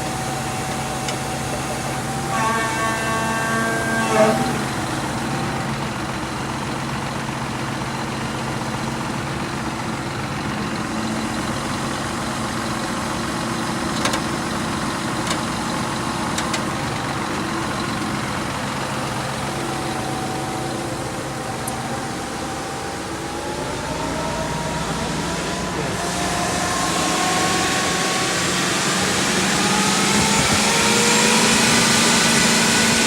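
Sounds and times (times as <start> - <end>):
pump engine running: 0.0 - 33.0
whine rising in pitch: 1.9 - 6.4, 19.4 - 33.0.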